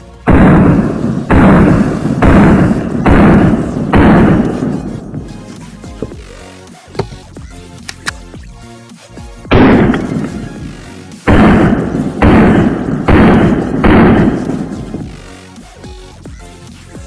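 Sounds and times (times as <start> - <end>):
loud pistol shots: 0.0 - 6.1, 9.5 - 15.3
electronic background music: 0.0 - 17.0.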